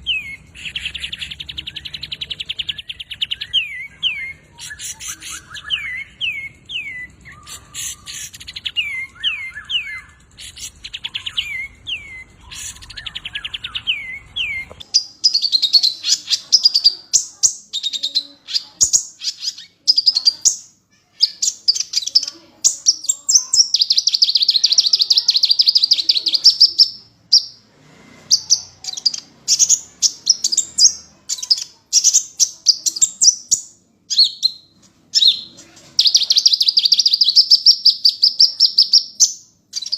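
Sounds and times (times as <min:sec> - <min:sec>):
bird chattering trills: 0:00.0 - 0:27.6, 0:28.3 - 0:39.9.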